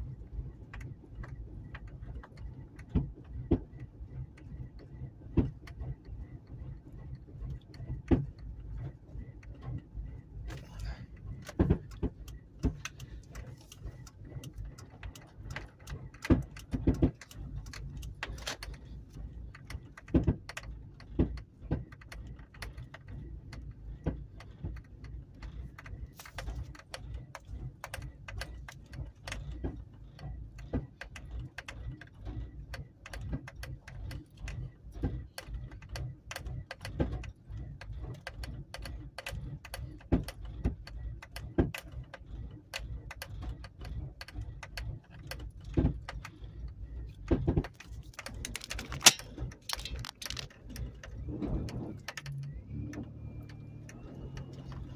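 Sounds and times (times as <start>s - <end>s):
truck engine rumbling: 5.8s - 32.7s, 42.2s - 54.9s
engine popping: 44.8s - 52.6s.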